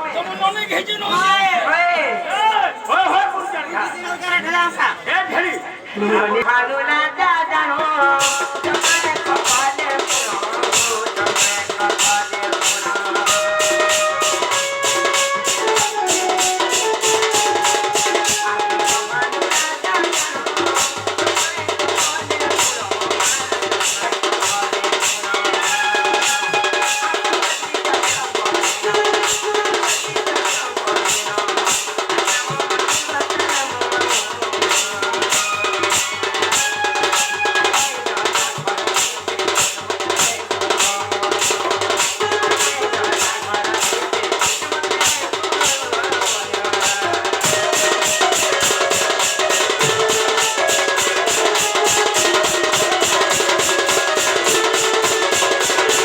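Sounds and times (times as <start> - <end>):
steady drum beat: 8.1 - 56.0
held melody notes: 13.3 - 19.6.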